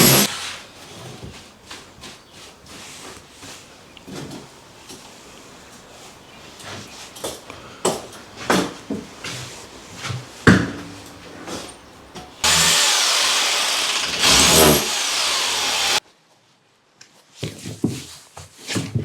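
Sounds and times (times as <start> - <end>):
hammer drill chiselling breeze block: 0.0 - 0.6, 12.4 - 16.0.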